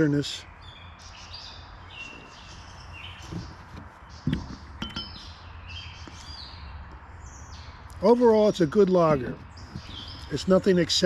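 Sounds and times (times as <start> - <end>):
birds chirping: 0.0 - 11.0
soft thump: 3.2 - 5.0.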